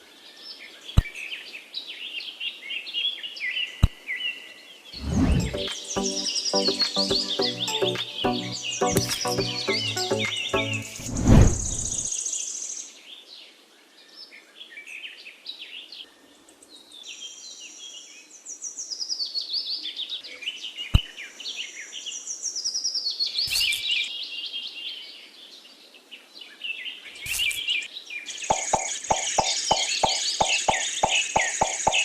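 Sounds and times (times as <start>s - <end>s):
birds chirping: 5.0s - 12.1s, 27.2s - 32.0s.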